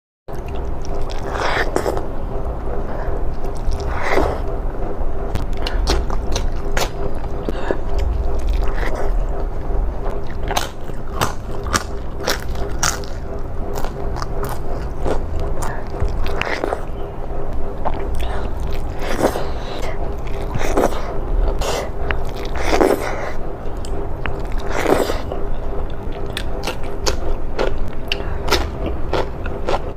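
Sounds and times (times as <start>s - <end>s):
steady low hum: 0.3s - 29.9s
wet chewing and smacking: 0.3s - 29.9s.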